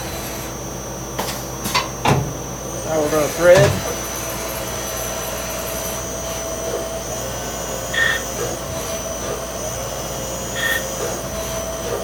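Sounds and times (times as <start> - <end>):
lathe spindle whirring: 0.0 - 12.0.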